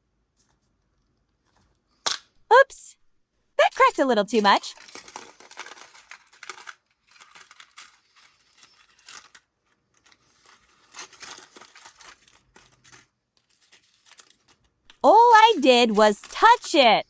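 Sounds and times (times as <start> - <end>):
wrapper crinkling and crackling: 3.6 - 16.8.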